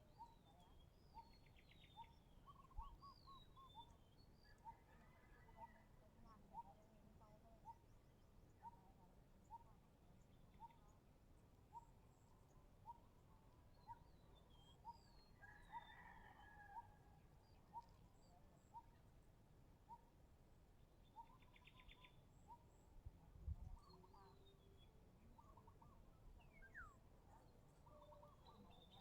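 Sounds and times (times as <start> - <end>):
faint bird calls: 21.0 - 29.0.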